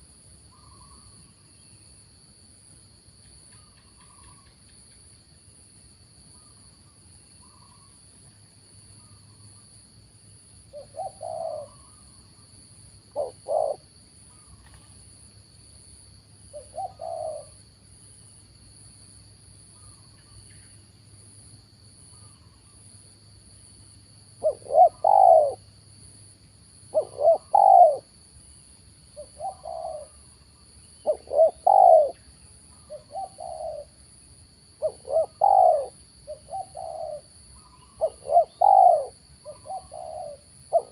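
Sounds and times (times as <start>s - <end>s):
doves cooing: 10.7s - 12.0s, 13.1s - 14.9s, 16.5s - 17.6s, 24.4s - 25.6s, 26.9s - 28.1s, 29.2s - 30.2s, 31.0s - 32.2s, 32.9s - 33.9s, 34.8s - 40.9s.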